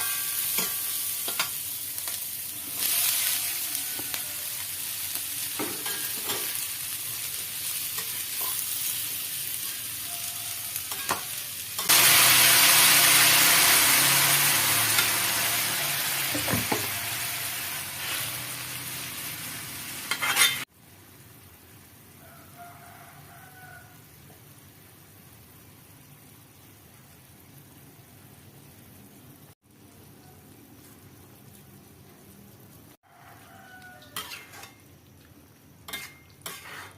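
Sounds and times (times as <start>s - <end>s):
food sizzling in a pan: 0.0s - 36.9s
faint rain hiss: 20.6s - 36.9s
stirring knocks and scrapes: 35.9s - 36.9s.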